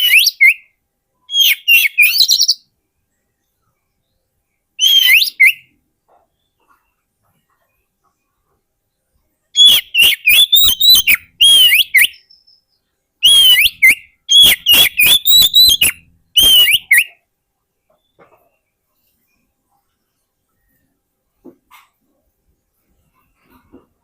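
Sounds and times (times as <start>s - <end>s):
magpie-robin singing: 0.0s - 0.7s, 1.3s - 2.7s, 4.8s - 7.0s, 9.6s - 17.2s.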